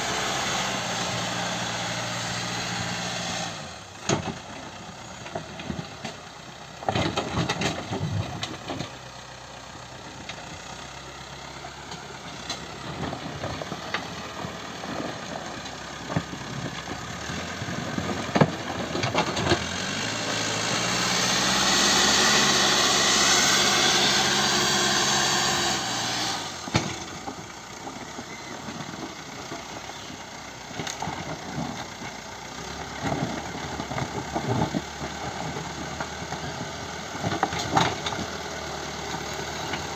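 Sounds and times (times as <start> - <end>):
diesel engine running and revving: 0.0 - 39.9.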